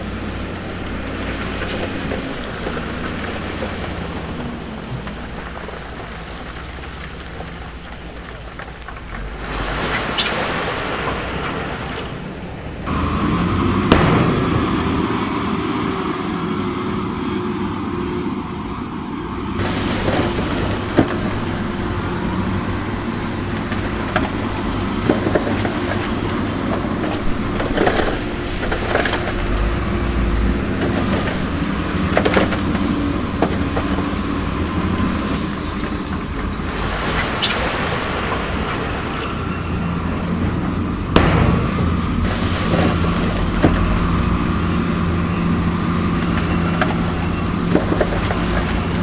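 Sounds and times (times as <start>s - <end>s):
heavy machinery diesel engine: 0.0s - 49.0s
sharp knocks and clanks: 40.7s - 49.0s.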